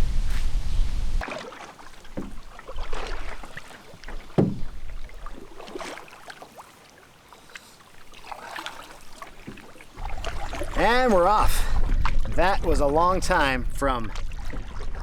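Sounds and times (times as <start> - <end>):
water splashing: 1.2 - 15.0
hollow knocks on canoe hull: 2.1 - 2.4, 4.2 - 5.0.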